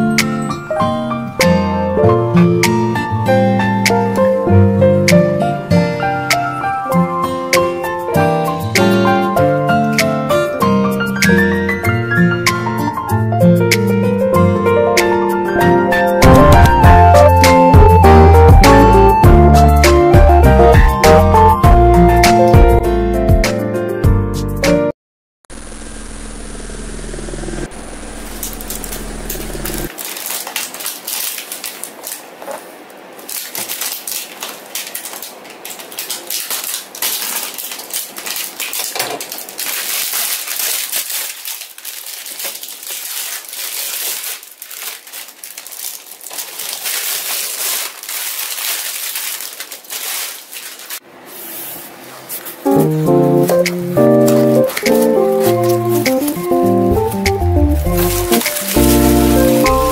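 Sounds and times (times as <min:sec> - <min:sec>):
crinkling and rustling: 0:28.3 - 0:59.9.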